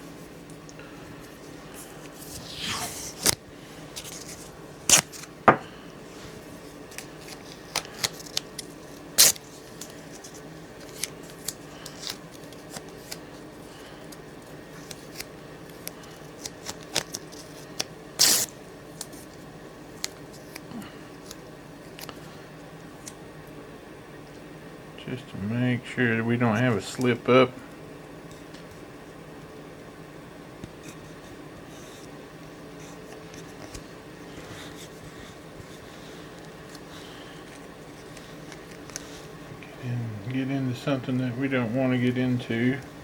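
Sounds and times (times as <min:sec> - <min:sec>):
tape pulled off roll: 0:02.1 - 0:03.4
tape ripping: 0:02.1 - 0:05.3, 0:07.0 - 0:13.2, 0:16.4 - 0:18.5.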